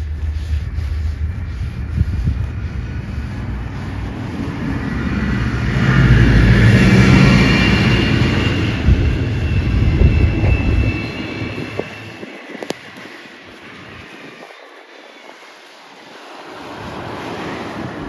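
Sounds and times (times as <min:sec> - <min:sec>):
heavy vehicle engine rumble: 0:00.0 - 0:12.2.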